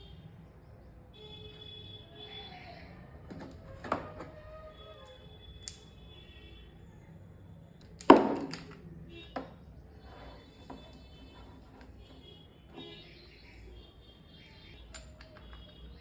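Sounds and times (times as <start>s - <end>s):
hard objects clicking and knocking: 7.8s - 9.6s, 14.8s - 15.9s.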